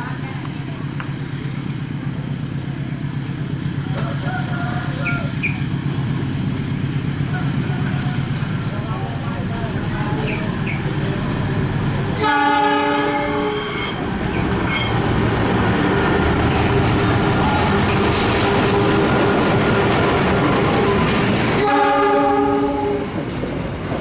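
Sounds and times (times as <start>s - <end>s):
train running on rails: 0.0s - 24.0s
locomotive horn chord: 12.2s - 14.0s, 21.6s - 23.0s.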